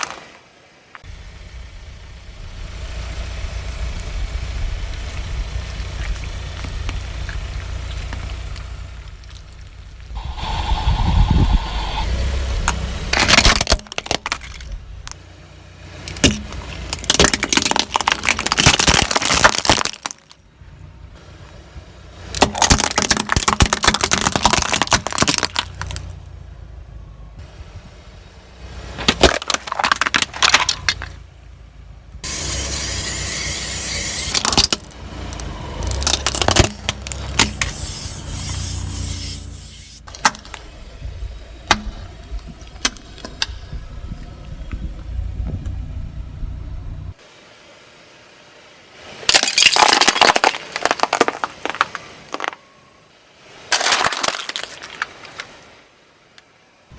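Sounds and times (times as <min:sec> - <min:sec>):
objects crunching under a tyre: 0:00.0 - 0:01.4, 0:04.8 - 0:20.5, 0:22.2 - 0:26.5, 0:28.8 - 0:31.4, 0:32.2 - 0:45.8, 0:49.2 - 0:52.9, 0:53.5 - 0:55.8
car engine rumble: 0:00.0 - 0:56.9.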